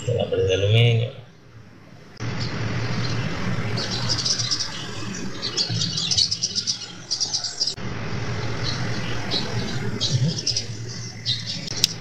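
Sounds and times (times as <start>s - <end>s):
low hum: 0.0s - 6.6s, 7.7s - 12.0s.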